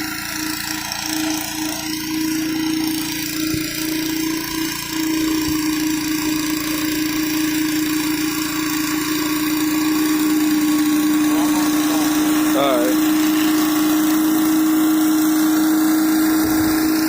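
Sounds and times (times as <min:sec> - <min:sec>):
pressure washer engine humming: 0:00.0 - 0:17.0
high-pressure water spray hissing: 0:05.6 - 0:17.0.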